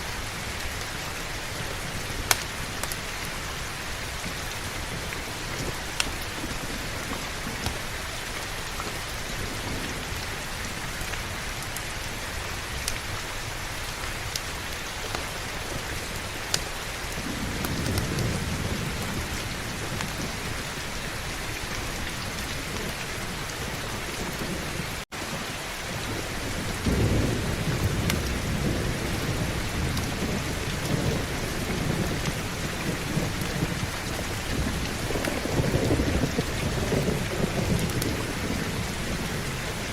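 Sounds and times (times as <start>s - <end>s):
low thunder rumbling: 0.0s - 14.0s, 14.6s - 25.0s, 25.6s - 39.9s
heavy rain: 0.0s - 39.9s.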